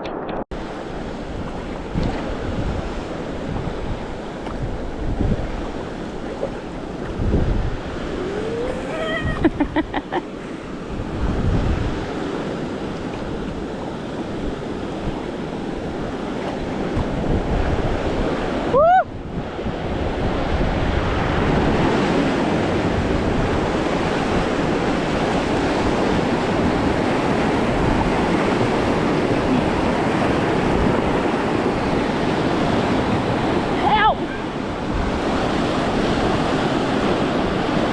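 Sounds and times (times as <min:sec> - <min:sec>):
wind buffeting microphone: 0:00.0 - 0:37.9
river rapids roaring: 0:00.6 - 0:37.9
short rising whoop: 0:08.0 - 0:09.6, 0:18.7 - 0:19.1.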